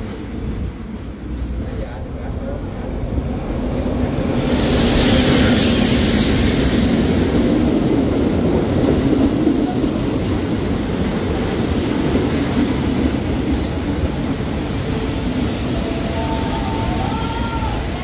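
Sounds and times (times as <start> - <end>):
diesel locomotive passing: 0.0 - 18.0
rumble of wheels on rails: 0.0 - 18.0
faint squeal of train wheels: 4.4 - 6.7, 13.2 - 18.0.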